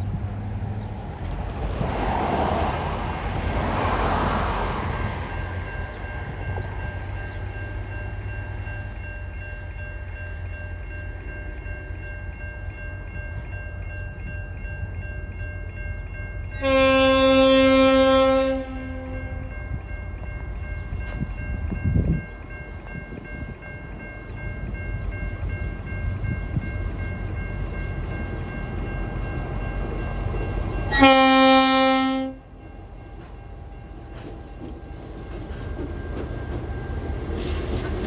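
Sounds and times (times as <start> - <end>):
diesel locomotive engine rumble: 0.0 - 38.0
locomotive horn blast: 16.6 - 19.6, 30.9 - 32.5.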